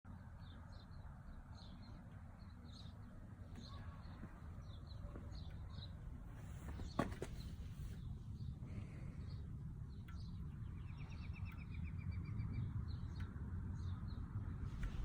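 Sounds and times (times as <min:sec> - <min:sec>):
small birds chirping: 0:00.2 - 0:15.0
faint low rumble: 0:14.4 - 0:15.0.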